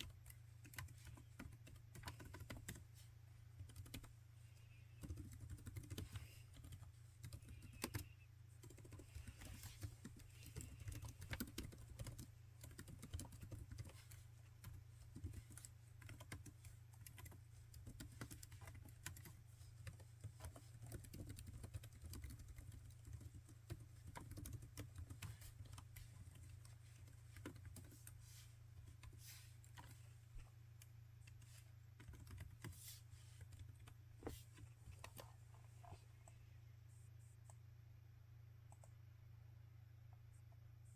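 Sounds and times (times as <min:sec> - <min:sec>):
laptop keyboard typing: 0:00.0 - 0:28.2, 0:28.8 - 0:30.0, 0:30.7 - 0:32.8.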